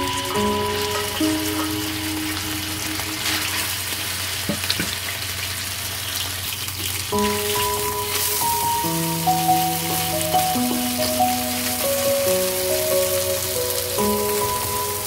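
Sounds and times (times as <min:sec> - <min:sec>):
background music: 0:00.0 - 0:04.0, 0:07.1 - 0:15.0
chicken sizzling in hot oil: 0:00.0 - 0:15.0.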